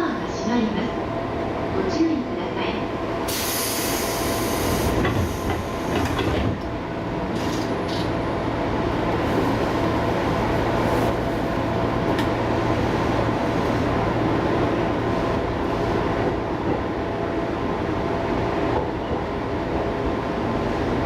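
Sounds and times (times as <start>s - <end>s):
train motor and gear hum: 0.0s - 21.0s
train rolling rumble: 0.0s - 21.0s
rail joint clicks: 4.6s - 8.2s, 12.0s - 12.4s.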